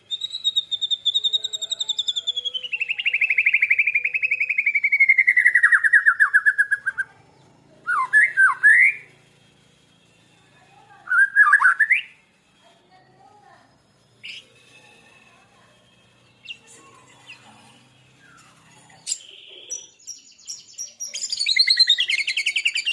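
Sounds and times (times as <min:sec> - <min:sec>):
quick whistled bird notes: 0:20.0 - 0:22.9.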